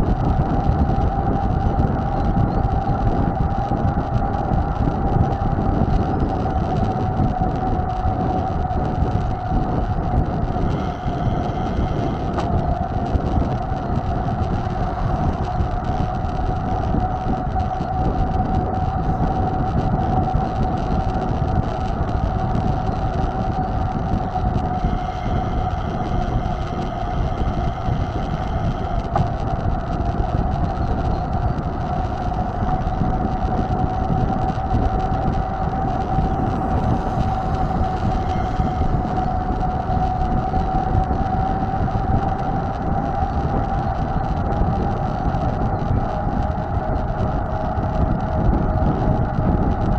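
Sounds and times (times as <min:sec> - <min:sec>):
constant thin high tone: 0:00.0 - 0:49.9
steady rumble: 0:00.0 - 0:49.9
steady whine: 0:00.0 - 0:49.9
wind buffeting microphone: 0:00.0 - 0:49.9.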